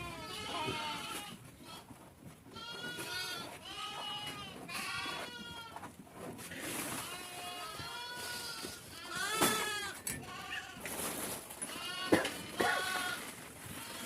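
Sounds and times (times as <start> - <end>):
goats and sheep bleating: 0.0 - 14.0.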